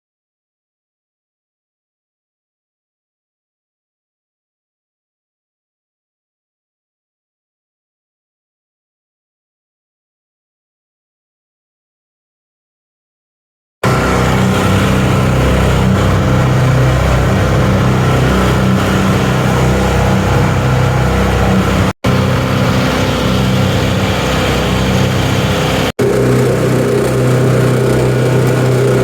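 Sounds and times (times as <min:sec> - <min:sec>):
mixing machine motor drone: 0:13.8 - 0:29.0.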